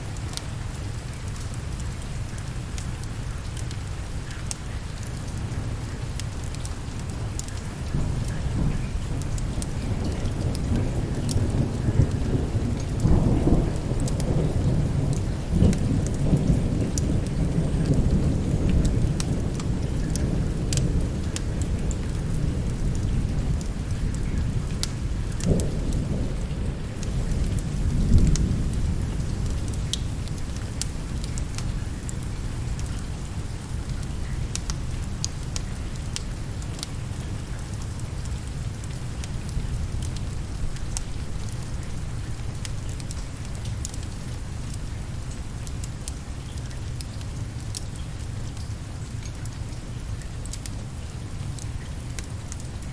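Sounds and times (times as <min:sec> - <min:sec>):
steady rain: 0:00.0 - 0:52.9
thunder rumbling: 0:08.0 - 0:32.9.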